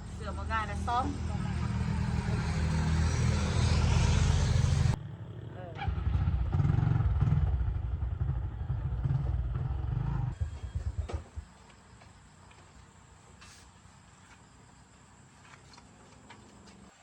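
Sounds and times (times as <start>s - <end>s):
motorbike engine running: 0.1s - 11.5s.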